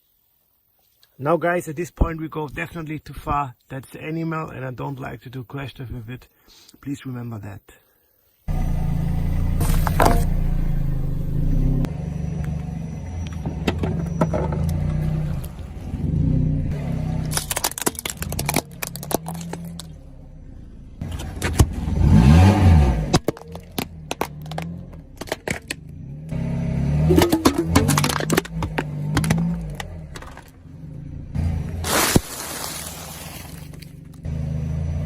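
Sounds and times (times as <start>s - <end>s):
car engine running: 8.5s - 35.0s
cracks and crunches of crushing: 17.2s - 20.0s, 31.8s - 34.2s.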